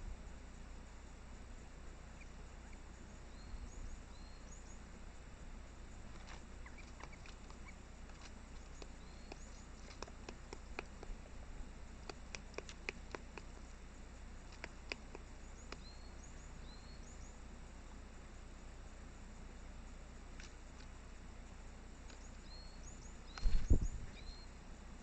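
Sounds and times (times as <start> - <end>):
woodpecker pecking at bark: 6.1 - 16.2
faint high chirps: 6.6 - 7.8, 8.6 - 10.4, 14.5 - 17.4, 22.1 - 24.6.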